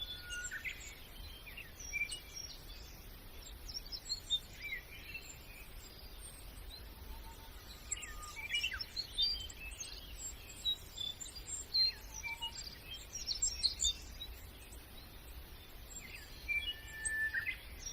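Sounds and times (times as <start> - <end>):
songbirds chirping and twittering: 0.0 - 17.9.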